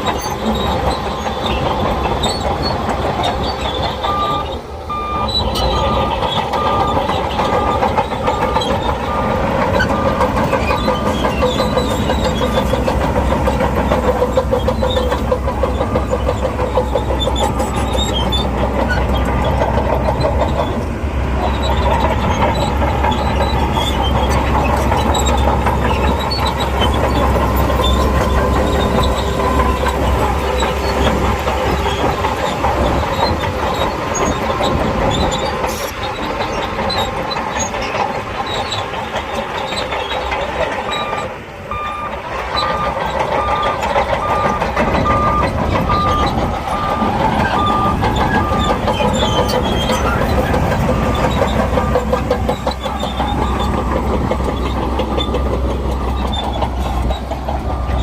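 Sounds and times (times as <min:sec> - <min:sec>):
bulldozer engine running hard: 0:00.0 - 0:58.0
steel tracks clanking: 0:00.0 - 0:58.0
reversing alarm beeping: 0:03.8 - 0:12.7, 0:15.0 - 0:18.6, 0:25.2 - 0:32.2, 0:40.9 - 0:58.0.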